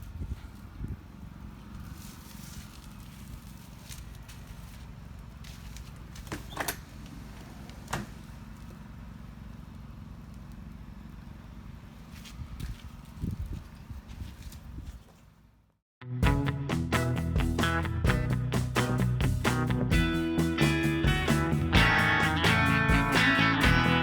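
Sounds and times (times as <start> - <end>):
wind rumbling on microphone: 0.0 - 3.4, 12.3 - 15.1.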